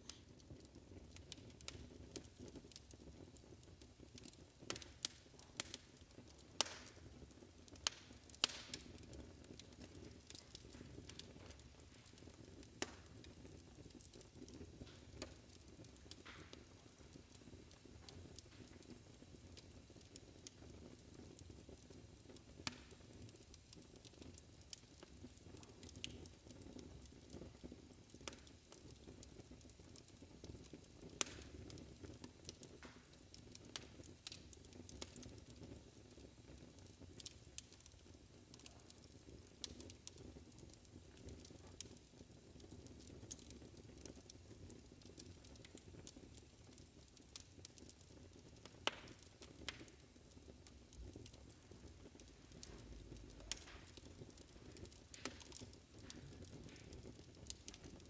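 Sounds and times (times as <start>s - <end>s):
wood fire crackling: 0.0s - 58.0s
low rumble of flames: 44.2s - 58.0s.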